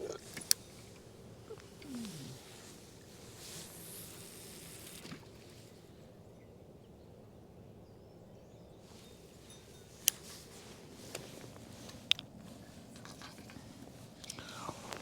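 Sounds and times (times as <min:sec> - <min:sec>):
faint bird chirps: 0:00.4 - 0:10.7.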